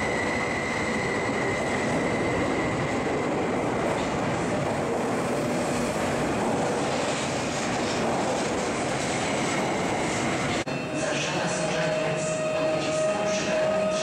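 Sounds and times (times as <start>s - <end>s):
electric train rumbling out: 0.0s - 14.0s.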